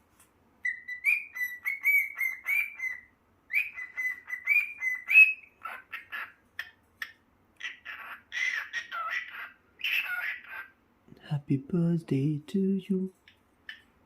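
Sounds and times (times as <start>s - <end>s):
cockatiel whistling a tune: 0.6s - 5.5s
raspy bird chirps: 0.6s - 10.7s.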